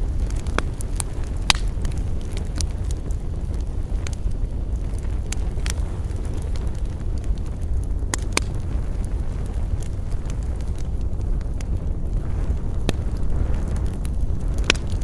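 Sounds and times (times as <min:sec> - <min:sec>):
low fire rumble: 0:00.0 - 0:15.0
wood fire popping: 0:00.0 - 0:15.0.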